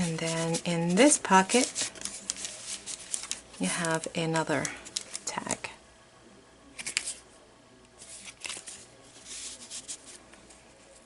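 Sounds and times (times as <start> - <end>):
paper rustling and sliding: 0.0 - 4.0, 8.0 - 10.2.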